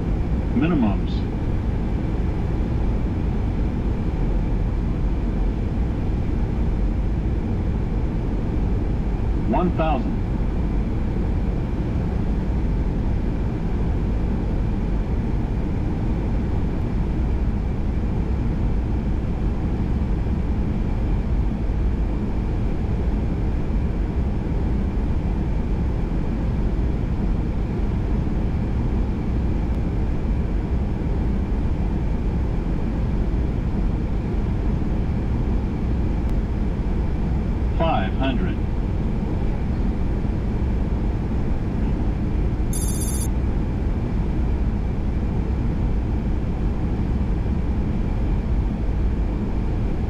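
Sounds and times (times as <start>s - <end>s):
faint high tone: 42.8s - 43.3s.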